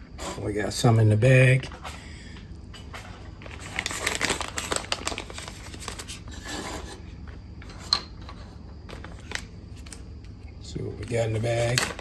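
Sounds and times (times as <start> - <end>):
plastic bag rustling: 2.8 - 6.9.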